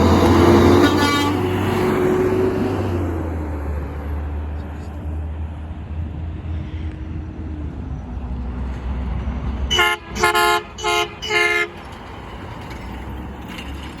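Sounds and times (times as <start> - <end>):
truck engine rumble: 0.0 - 14.0
garbage truck horn honking: 0.1 - 2.0, 9.7 - 11.8.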